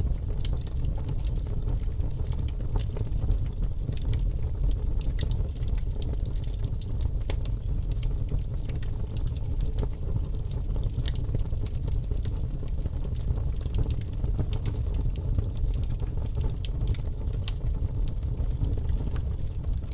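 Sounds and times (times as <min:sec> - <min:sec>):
wood fire crackling and popping: 0:00.0 - 0:19.9.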